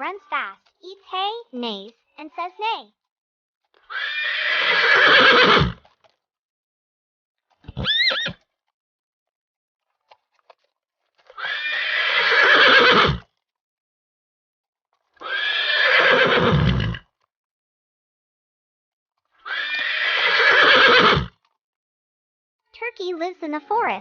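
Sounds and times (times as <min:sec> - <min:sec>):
horse neighing: 0:03.9 - 0:05.9, 0:07.6 - 0:08.4, 0:11.3 - 0:13.3, 0:15.2 - 0:17.1, 0:19.4 - 0:21.4.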